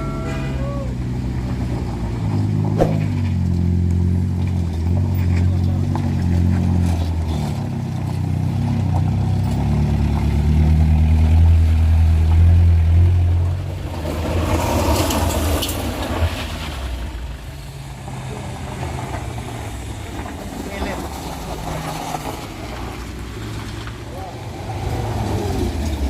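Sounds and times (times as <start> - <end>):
vehicle engine under load: 0.0 - 26.0
rough rushing noise: 2.7 - 3.6.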